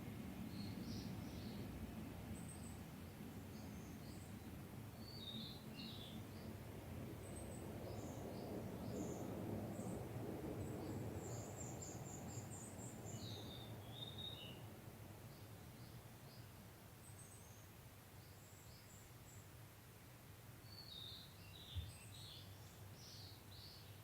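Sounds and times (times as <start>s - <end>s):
songbirds chirping: 0.2s - 24.0s.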